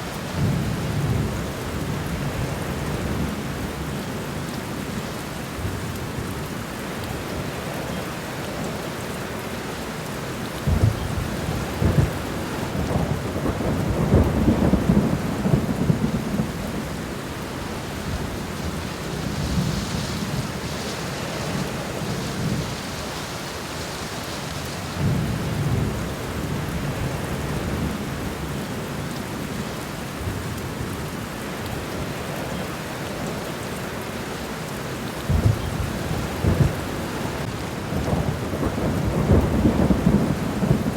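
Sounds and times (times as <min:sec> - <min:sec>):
steady rain falling: 0:00.0 - 0:40.9
rolling thunder: 0:10.7 - 0:23.9, 0:35.2 - 0:40.9.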